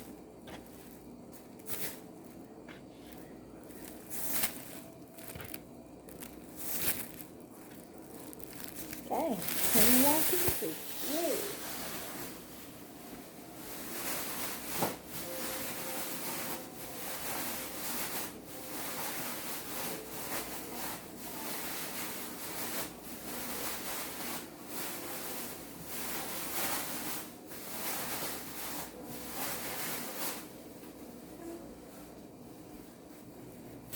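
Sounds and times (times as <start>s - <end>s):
chicken rubbed in flour: 13.5s - 30.5s.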